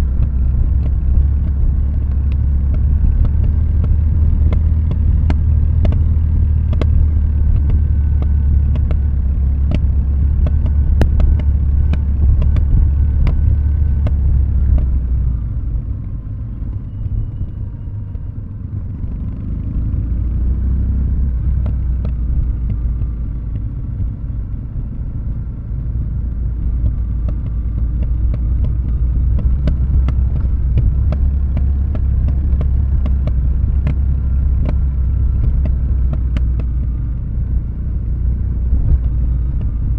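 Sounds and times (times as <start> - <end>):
light ticks: 0.0 - 15.1
motorcycle engine burbling: 0.0 - 39.9.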